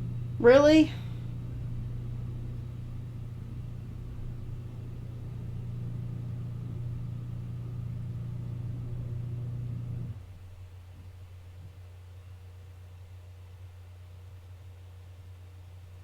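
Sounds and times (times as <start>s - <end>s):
garage door motor humming: 0.0s - 10.6s.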